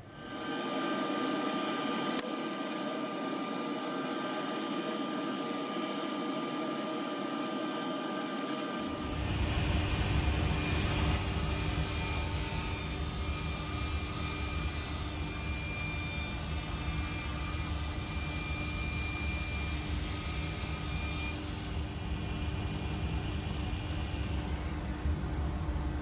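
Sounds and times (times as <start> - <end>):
table saw running: 0.0 - 25.0
low motor hum: 21.7 - 26.0.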